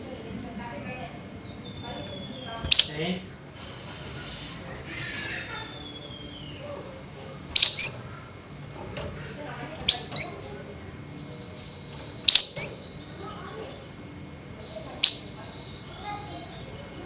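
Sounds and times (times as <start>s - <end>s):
faint falling whistle: 5.8s - 6.6s
songbird harsh double calls: 7.6s - 8.2s, 12.2s - 13.0s.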